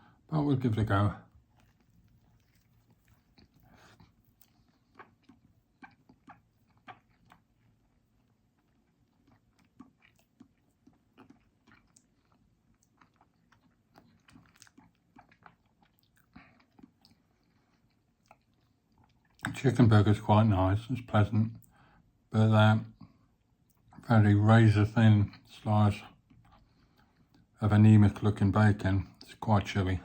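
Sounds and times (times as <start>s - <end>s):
chewing with mouth clicks: 1.2s - 19.6s, 22.9s - 24.1s, 26.1s - 27.5s.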